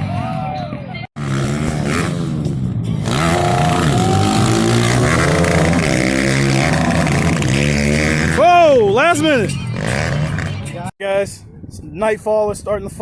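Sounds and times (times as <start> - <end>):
pit bike engines revving: 0.0 - 10.9.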